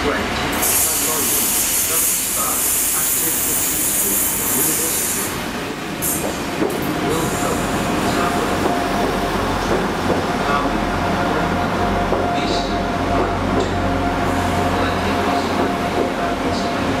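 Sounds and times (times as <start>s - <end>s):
diesel train braking: 0.0s - 9.7s.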